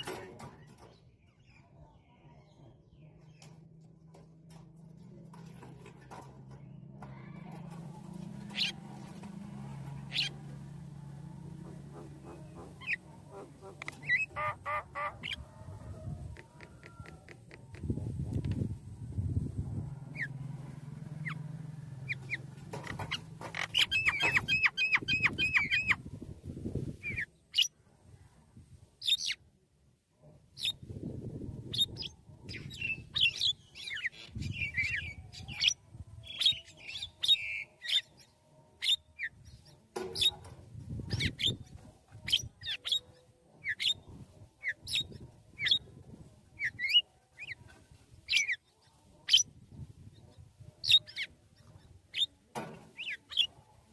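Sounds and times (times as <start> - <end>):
birds chirping: 5.4 - 15.7, 16.4 - 26.2, 31.6 - 53.9.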